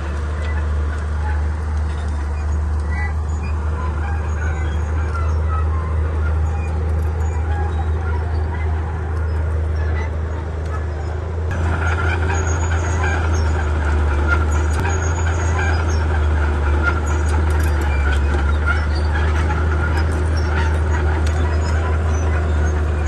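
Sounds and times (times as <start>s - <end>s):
bulldozer diesel engine droning: 0.0s - 23.0s.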